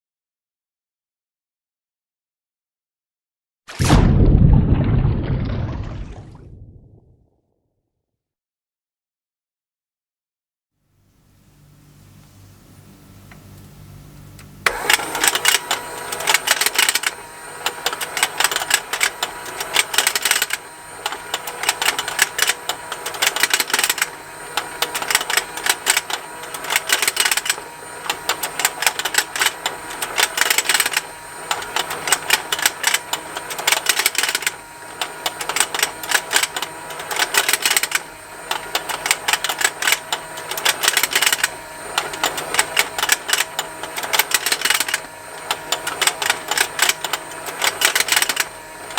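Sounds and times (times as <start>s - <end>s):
toy motor plastic ticking: 14.7s - 48.9s.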